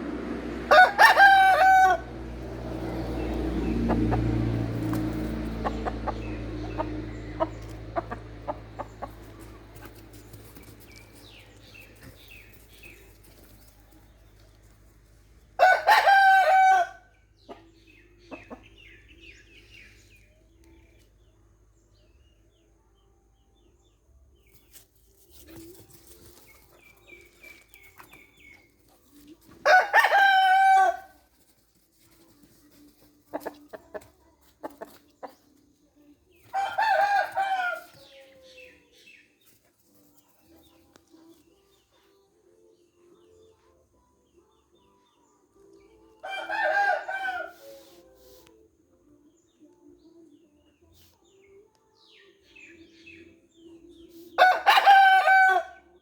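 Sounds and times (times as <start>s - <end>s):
rooster crowing: 0.7s - 2.6s, 15.6s - 17.1s, 29.6s - 31.2s, 36.5s - 38.6s, 46.2s - 48.0s, 54.4s - 55.8s
chickens clucking: 3.3s - 12.9s, 17.4s - 19.0s, 33.2s - 35.6s.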